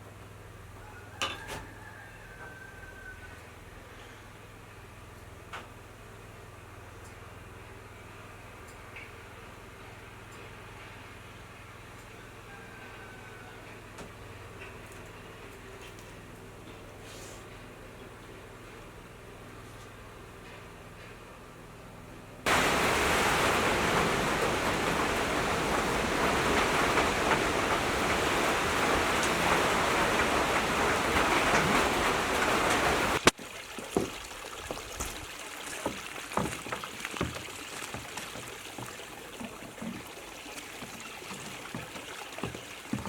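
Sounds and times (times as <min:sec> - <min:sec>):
water rushing: 0:22.5 - 0:43.0
water trickling and dripping: 0:22.5 - 0:43.0.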